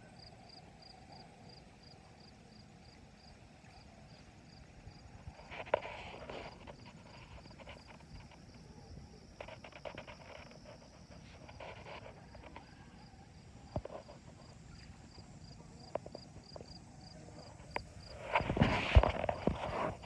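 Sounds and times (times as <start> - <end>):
footsteps: 17.6 - 20.0.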